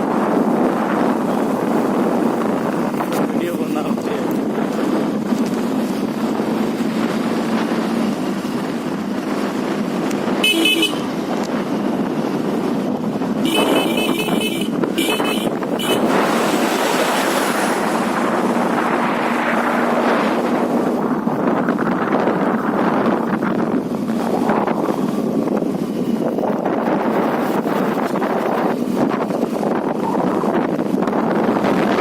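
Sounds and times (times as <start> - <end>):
wind and road noise: 0.0 - 32.0
vehicle horn honking: 10.4 - 11.2, 13.4 - 16.1.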